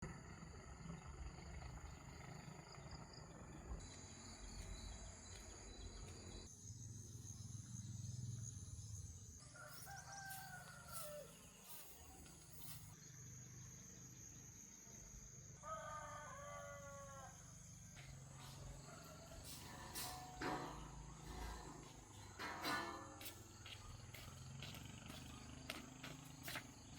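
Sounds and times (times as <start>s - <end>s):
insects buzzing: 1.9s - 26.9s
faint rooster crowing: 9.4s - 12.3s, 15.6s - 22.0s.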